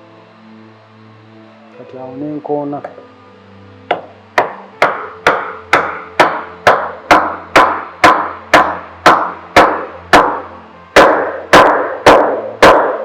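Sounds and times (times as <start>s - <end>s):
mallet knocking on wood: 3.9s - 13.0s.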